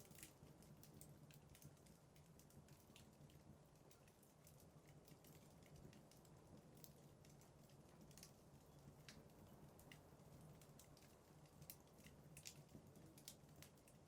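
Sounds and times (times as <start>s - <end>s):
fire crackling pops and snaps: 0.0s - 14.0s.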